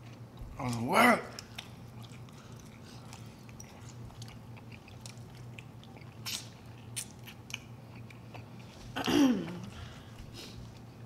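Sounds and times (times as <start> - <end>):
wet mouth clicks and smacks: 6.2 - 8.1.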